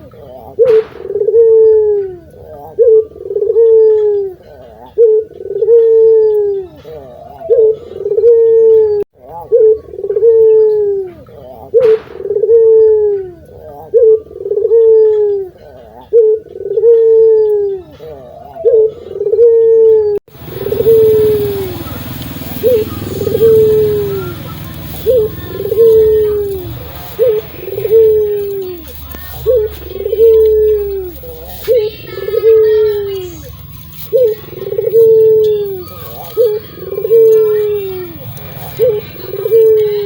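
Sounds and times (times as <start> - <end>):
dove cooing: 0.0 - 40.0
sharp click: 0.6 - 1.5, 11.8 - 12.4.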